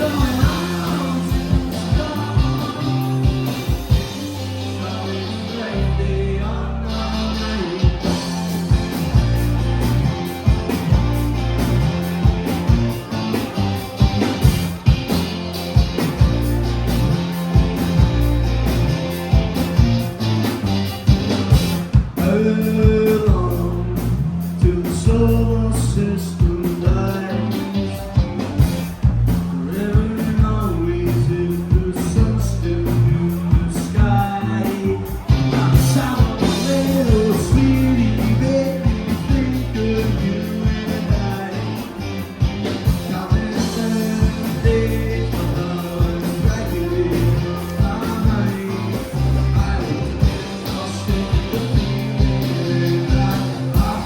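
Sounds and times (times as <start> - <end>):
person singing: 0.0 - 9.3, 29.6 - 54.0
rock band playing live: 0.0 - 54.0.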